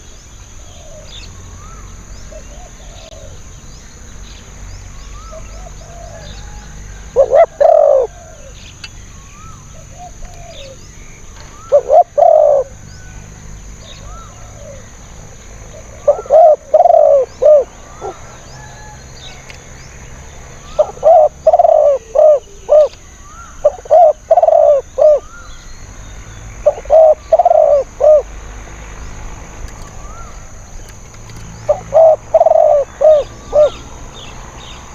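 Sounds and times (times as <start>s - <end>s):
dove cooing: 0.7s - 3.4s, 5.2s - 8.6s, 9.4s - 13.2s, 13.8s - 15.0s, 15.7s - 18.9s, 20.6s - 25.4s, 26.6s - 28.3s, 31.6s - 33.9s.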